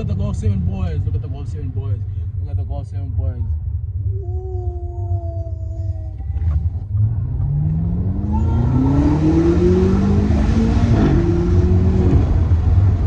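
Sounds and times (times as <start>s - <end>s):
car engine accelerating hard: 6.2s - 13.0s.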